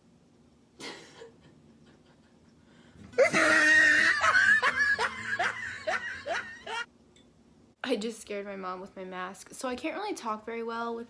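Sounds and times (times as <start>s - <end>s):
woman's startled high-pitched cry: 3.2s - 4.4s.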